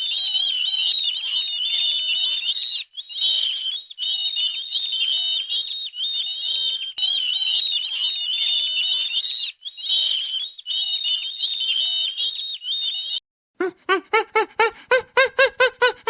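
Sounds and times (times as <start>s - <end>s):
dense chorus of birds chirping: 0.0s - 13.2s.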